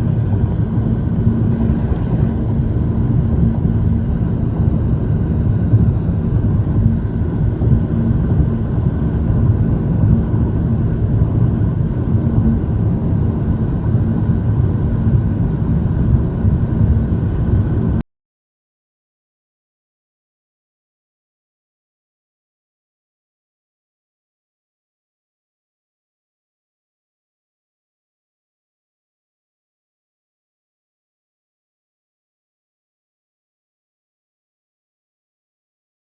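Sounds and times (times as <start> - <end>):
car road and engine hum: 0.0 - 18.0.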